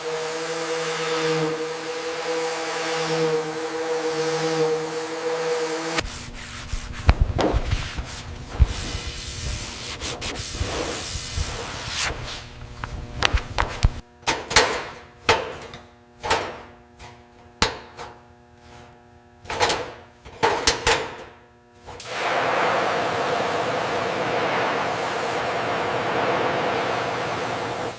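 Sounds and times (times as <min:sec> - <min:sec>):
steady hum: 0:00.0 - 0:20.5, 0:21.2 - 0:27.9
rubbing and scraping strokes: 0:06.0 - 0:12.5.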